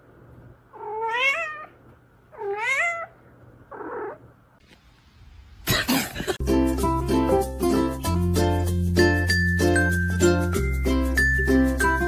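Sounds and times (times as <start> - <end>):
cat meowing: 0.8 - 4.2.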